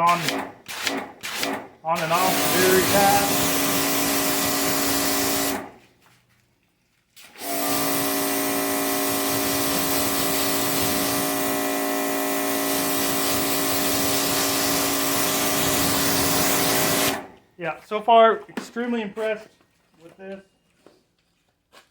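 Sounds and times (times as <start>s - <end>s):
electric pressure washer spraying: 2.0s - 5.8s, 7.3s - 17.3s.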